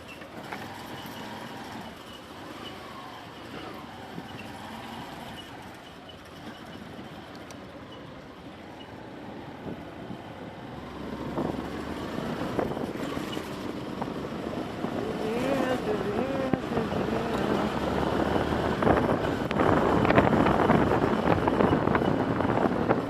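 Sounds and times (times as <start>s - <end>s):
motor vehicle approaching: 0.0s - 23.0s
street noise: 0.0s - 23.0s
person calling out: 15.0s - 17.8s.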